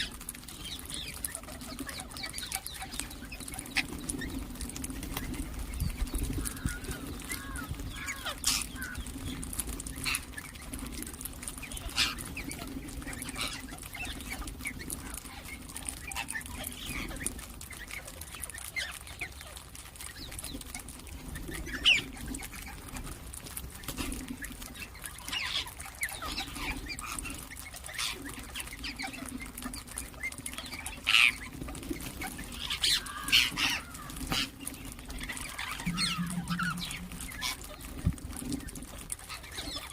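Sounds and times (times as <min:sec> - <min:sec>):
parakeets chirping and squawking: 0:00.0 - 0:39.9
steady low hum: 0:35.1 - 0:38.7.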